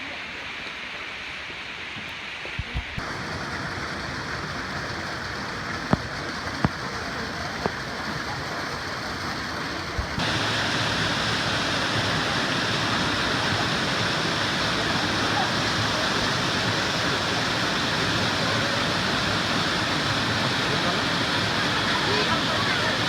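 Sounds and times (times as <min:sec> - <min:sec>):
waterfall stream rushing: 0:03.0 - 0:06.0, 0:10.1 - 0:23.0.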